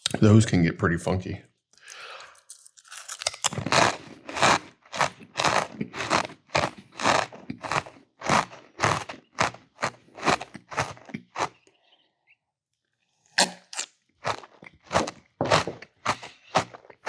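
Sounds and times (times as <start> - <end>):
person chewing crunchy food: 1.8 - 11.7, 13.4 - 17.0.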